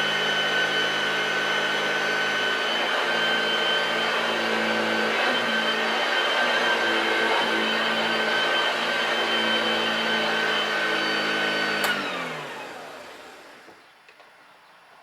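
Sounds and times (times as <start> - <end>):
vacuum cleaner whining: 0.0 - 14.3
vacuum switch click: 11.8 - 12.1.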